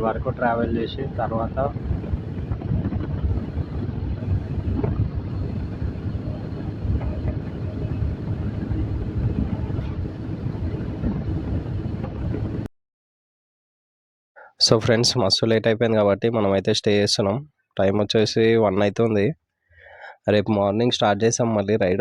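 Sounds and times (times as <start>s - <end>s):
motorcycle engine: 0.0s - 12.6s
wind noise on microphone: 0.0s - 12.7s.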